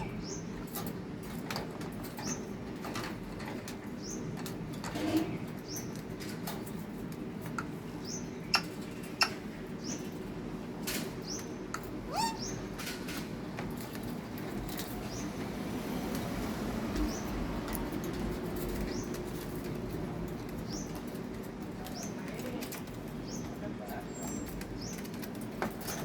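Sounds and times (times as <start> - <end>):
parrot chirping and squeaking: 0.0 - 0.4, 12.0 - 12.8
parrot rising whistle: 12.1 - 12.4.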